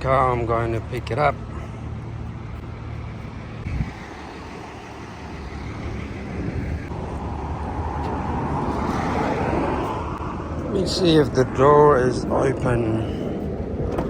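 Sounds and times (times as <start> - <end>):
engine rumble: 0.0 - 14.0.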